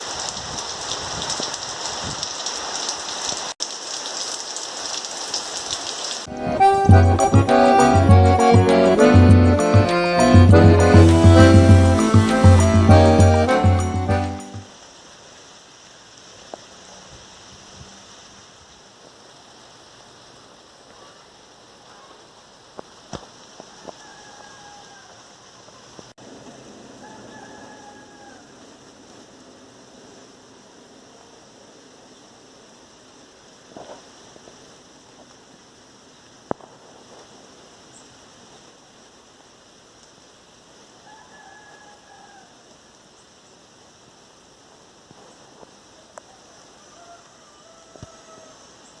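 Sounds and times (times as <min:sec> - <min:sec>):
raindrops ticking: 0:00.0 - 0:14.9
steady rain falling: 0:00.0 - 0:49.0
music: 0:06.3 - 0:14.7.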